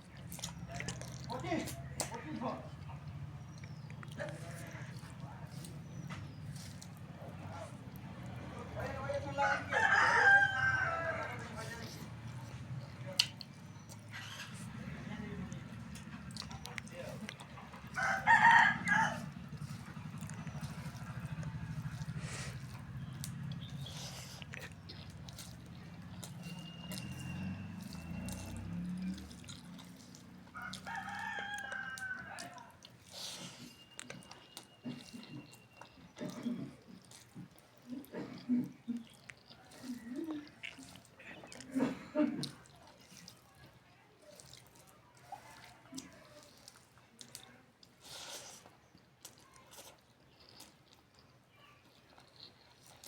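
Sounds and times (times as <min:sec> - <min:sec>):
person eating clicks: 0:00.0 - 0:09.0, 0:09.8 - 0:53.0
person chewing: 0:00.0 - 0:53.0
rooster crowing: 0:09.2 - 0:11.8, 0:17.9 - 0:19.6, 0:30.5 - 0:32.8.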